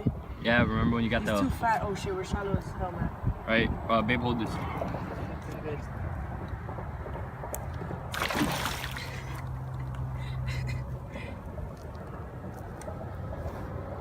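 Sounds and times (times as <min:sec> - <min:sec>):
low steady hum: 0:08.0 - 0:13.0
fish thrashing in water: 0:08.1 - 0:09.9.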